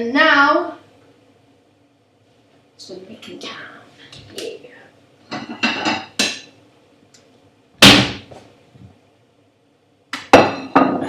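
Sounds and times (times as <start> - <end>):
kitchenware knocking and clinking: 5.3 - 6.5, 10.3 - 11.0.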